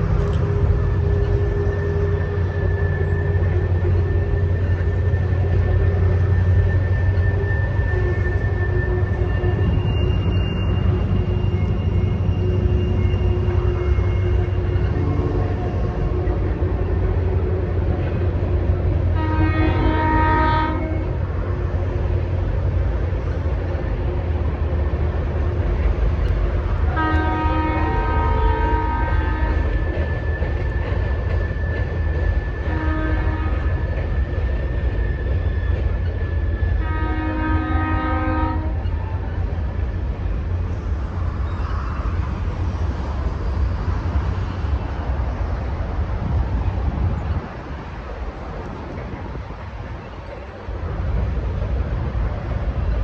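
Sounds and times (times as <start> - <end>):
high engine whine: 0.0 - 19.2
diesel locomotive engine drone: 0.0 - 53.0
locomotive horn blast: 19.0 - 21.3, 26.9 - 29.7, 32.6 - 33.7, 36.8 - 39.2.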